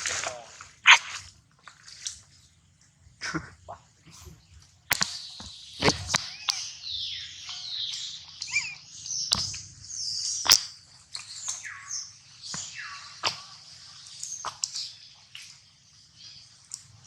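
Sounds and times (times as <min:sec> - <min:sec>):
sharp clicks: 0:04.9 - 0:05.2
high-pitched animal chirps and squeaks: 0:05.8 - 0:06.8, 0:07.5 - 0:09.6.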